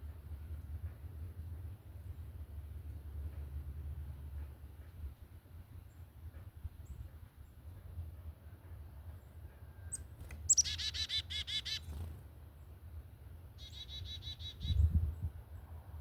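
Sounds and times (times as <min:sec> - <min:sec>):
bird whistled song: 0:09.9 - 0:11.9, 0:13.6 - 0:14.9.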